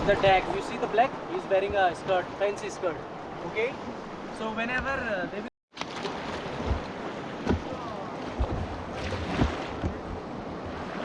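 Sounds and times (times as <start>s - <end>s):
wind thumps on microphone: 6.4s - 10.8s.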